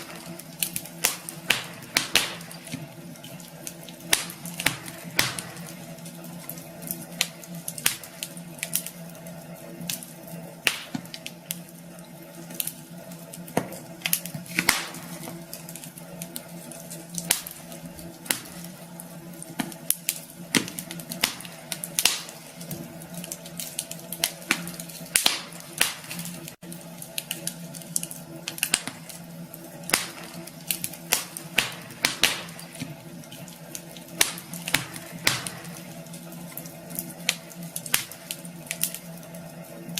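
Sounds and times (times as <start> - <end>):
fire low hiss and hum: 0.0 - 39.9
wood fire crackling and popping: 0.0 - 39.9.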